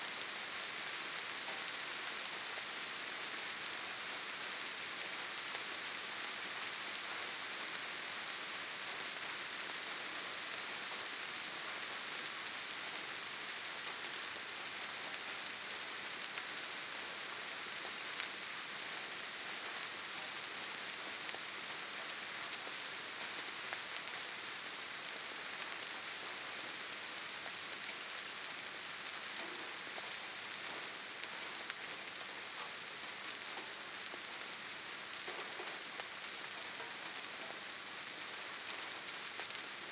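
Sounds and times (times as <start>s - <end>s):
rain hissing: 10.5s - 39.9s.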